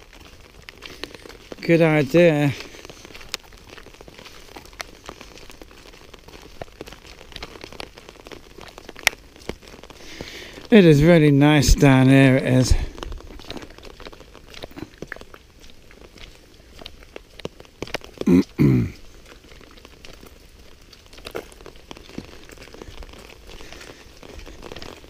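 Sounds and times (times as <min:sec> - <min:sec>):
rain pattering: 0:00.0 - 0:25.0.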